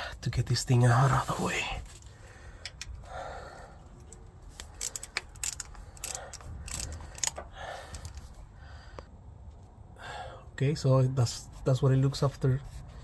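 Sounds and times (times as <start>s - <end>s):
hand tools clicking and clanking: 3.9s - 8.4s.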